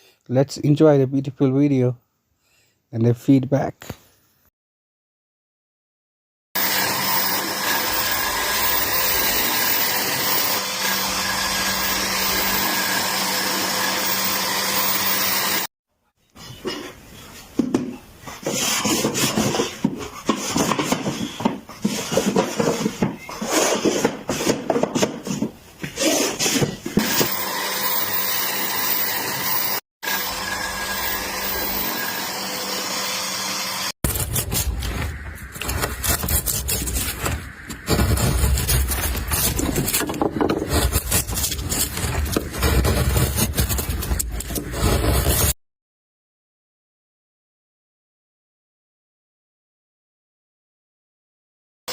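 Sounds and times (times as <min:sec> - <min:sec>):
power tool rasping on wood: 0:35.6 - 0:45.6.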